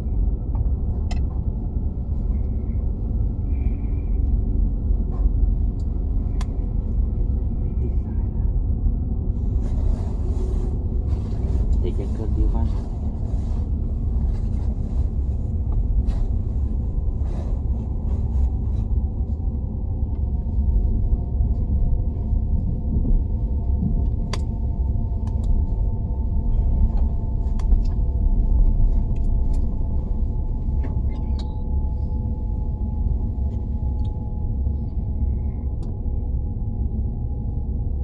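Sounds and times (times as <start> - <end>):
train cabin rumble: 0.0 - 37.7
faint steady whine: 0.8 - 8.6.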